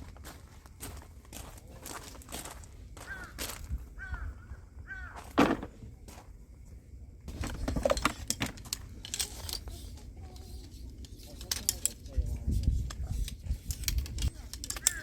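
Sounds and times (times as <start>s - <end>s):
clicks and clatter: 7.3s - 9.8s, 10.6s - 15.0s.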